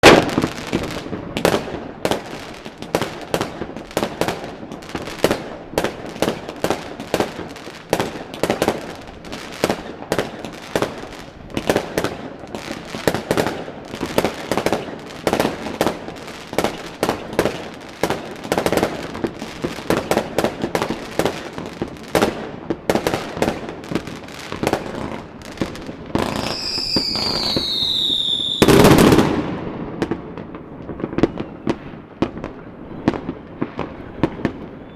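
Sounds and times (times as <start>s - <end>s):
fireworks bangs and crackles: 0.0s - 34.9s
loud firework blast: 13.0s - 32.4s
falling firework whistle: 26.2s - 30.1s, 31.0s - 32.0s, 33.0s - 34.9s.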